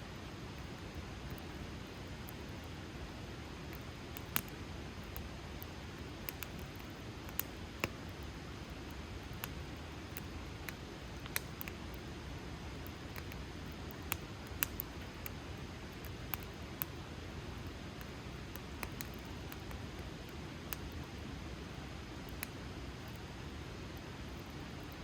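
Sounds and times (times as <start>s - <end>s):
low rumble of flames: 0.1s - 25.0s
wood crackling and popping: 3.6s - 21.0s.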